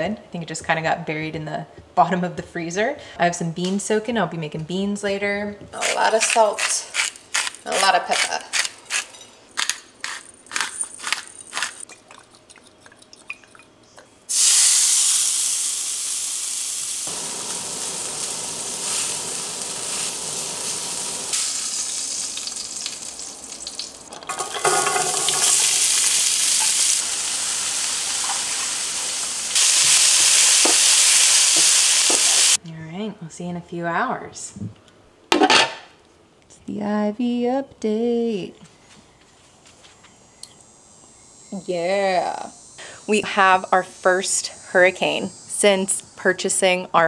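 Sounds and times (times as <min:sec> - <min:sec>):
pepper grinder clicking: 0:05.8 - 0:11.8
wooden spoon stirring: 0:05.8 - 0:13.8
meat searing in a skillet: 0:14.3 - 0:32.6
vegetables sizzling in a skillet: 0:14.3 - 0:32.6.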